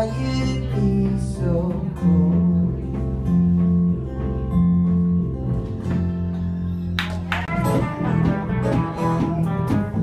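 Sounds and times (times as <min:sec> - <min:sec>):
blues band playing: 0:00.0 - 0:10.0
quick guitar notes with bends: 0:02.8 - 0:10.0.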